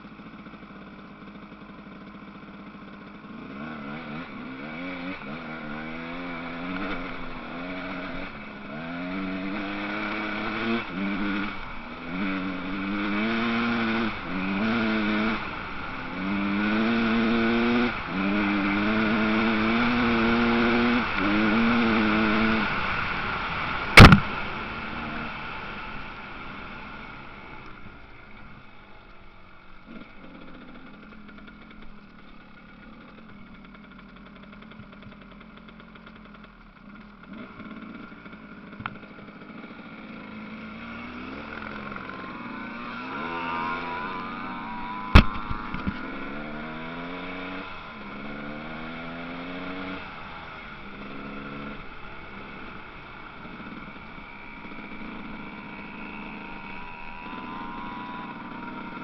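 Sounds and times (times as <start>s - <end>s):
motocross engines revving: 0.3s - 59.0s
sharp loud knock: 24.0s - 24.3s, 45.2s - 45.9s.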